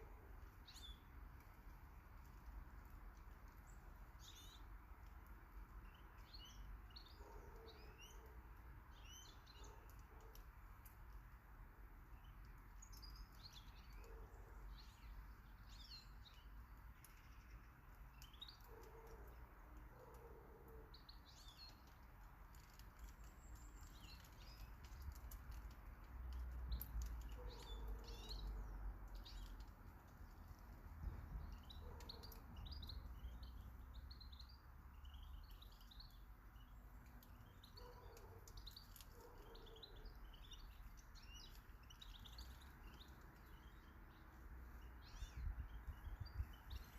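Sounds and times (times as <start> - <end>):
birds chirping: 30.2 - 46.9.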